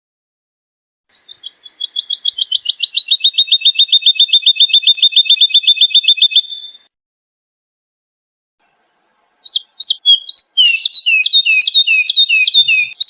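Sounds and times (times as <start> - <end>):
woodlark singing trill: 1.1 - 6.9, 8.6 - 13.0.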